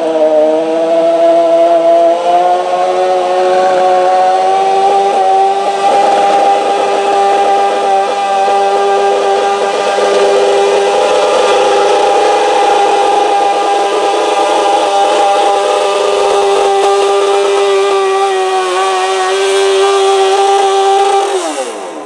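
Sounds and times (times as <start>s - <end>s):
tractor engine running under load: 4.5s - 22.0s.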